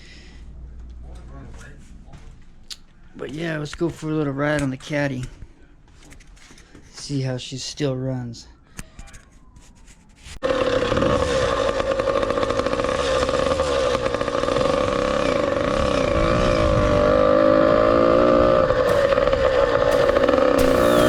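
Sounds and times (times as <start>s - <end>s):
two-stroke engine running: 10.4s - 21.0s.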